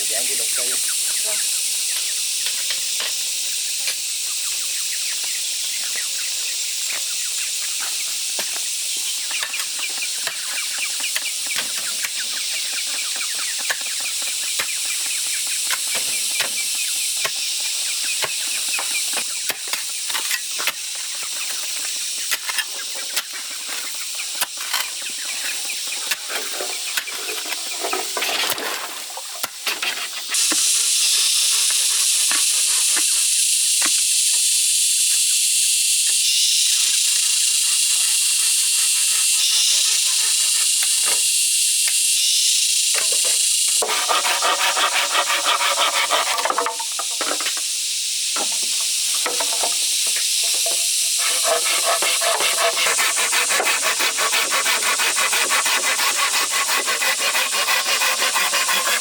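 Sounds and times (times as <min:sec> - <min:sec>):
high-pitched hiss: 0:00.0 - 0:59.0
chickens clucking: 0:09.2 - 0:16.9.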